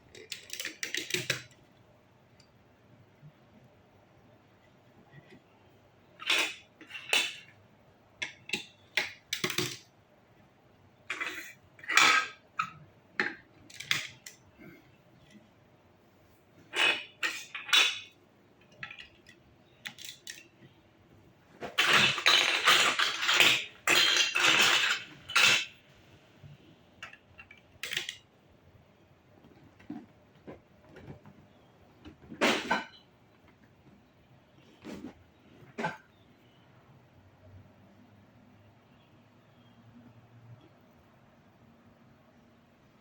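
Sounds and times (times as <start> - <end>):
toy blocks clicking together: 0.1 - 1.5, 8.2 - 9.9, 18.7 - 20.5, 21.8 - 25.7, 27.0 - 28.2
toy blocks rattling: 6.2 - 7.5, 16.7 - 18.1, 18.7 - 20.6, 21.6 - 25.7, 27.0 - 28.2.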